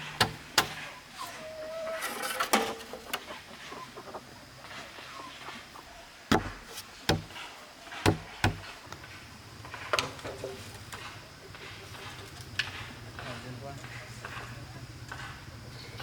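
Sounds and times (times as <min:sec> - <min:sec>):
hard knocks on bamboo: 0:00.1 - 0:00.8, 0:06.3 - 0:08.8.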